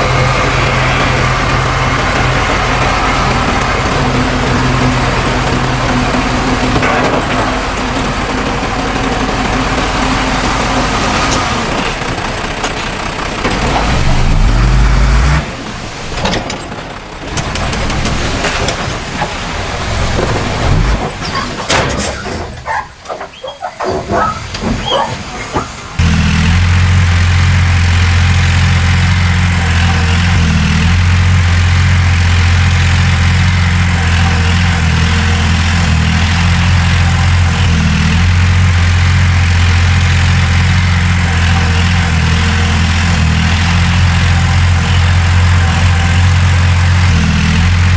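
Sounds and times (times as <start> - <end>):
low engine drone: 0.0 - 16.5, 25.9 - 47.9
heavy diesel engines running: 0.0 - 47.9
scattered knocks and clicks: 16.2 - 25.8.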